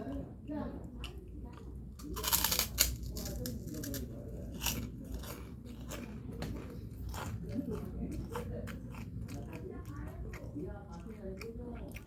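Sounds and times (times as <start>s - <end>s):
chewing crunchy food: 0.0s - 12.0s.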